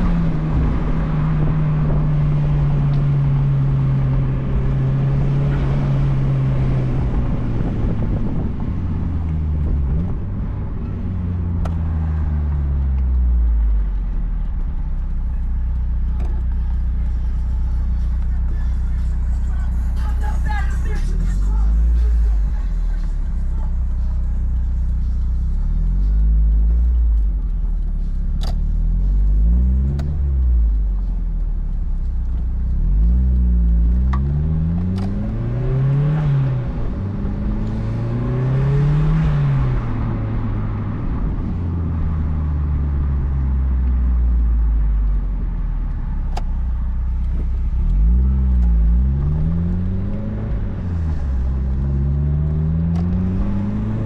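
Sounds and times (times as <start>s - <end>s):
car engine accelerating: 0.0s - 54.0s
sharp clicks: 26.1s - 35.5s.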